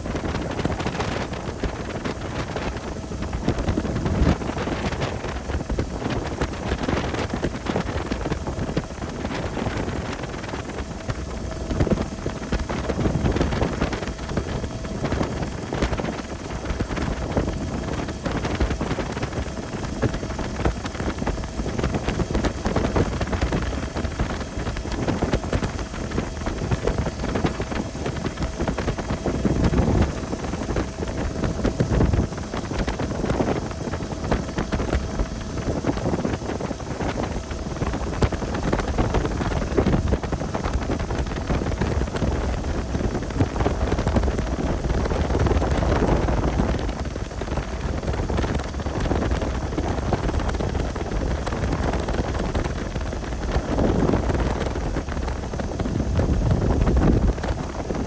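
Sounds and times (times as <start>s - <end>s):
wind buffeting microphone: 0.0s - 58.0s
steady low rumble: 50.0s - 58.0s.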